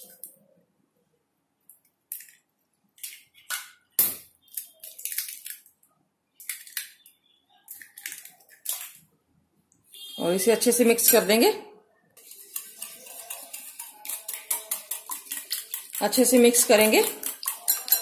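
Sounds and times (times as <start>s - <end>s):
eggs cracking against a bowl: 2.1s - 5.8s, 7.7s - 9.0s, 12.4s - 18.0s.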